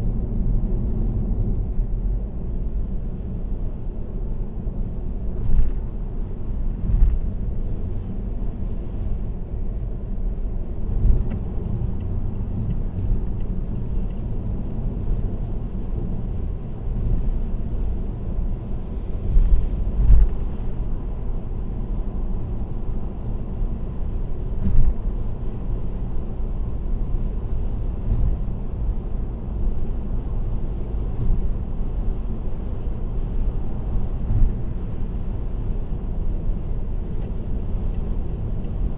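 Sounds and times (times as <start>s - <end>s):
car road and tyre rumble: 0.0s - 38.9s.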